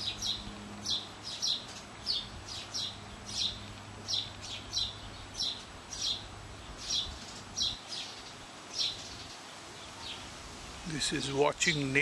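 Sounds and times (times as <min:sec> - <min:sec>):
bird chirping: 0:00.0 - 0:10.3.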